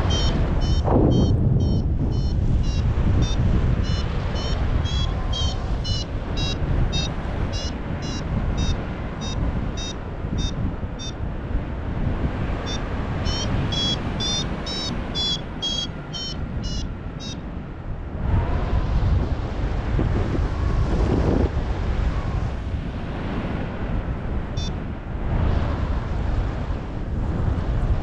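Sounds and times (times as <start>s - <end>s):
variometer short high beeps: 0.0s - 11.2s, 12.6s - 17.4s
wind rushing over microphone: 0.0s - 28.0s.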